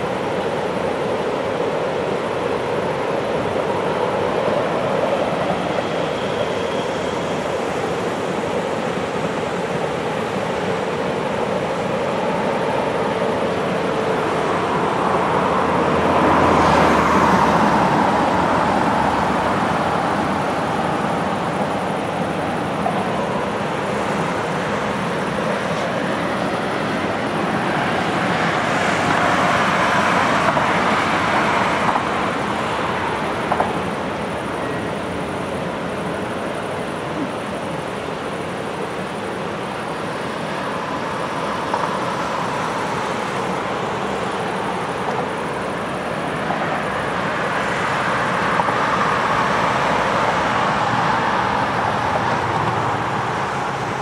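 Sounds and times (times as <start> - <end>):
distant freight train rumbling: 0.0 - 54.0.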